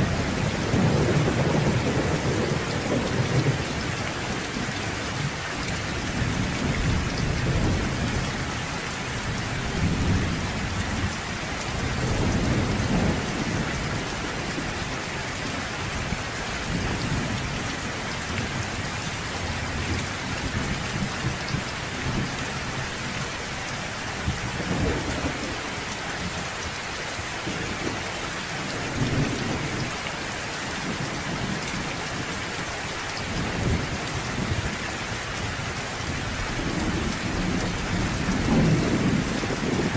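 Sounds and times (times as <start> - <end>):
low rolls of thunder: 0.0 - 4.6, 24.5 - 25.7, 36.5 - 39.9
steady rain: 0.0 - 39.9.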